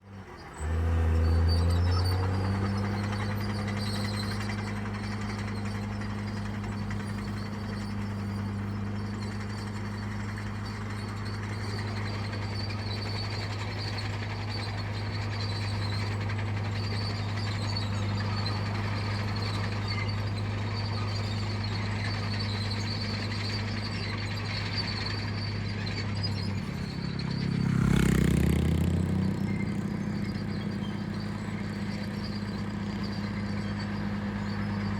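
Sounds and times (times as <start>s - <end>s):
heavy diesel engine running: 0.0s - 34.9s.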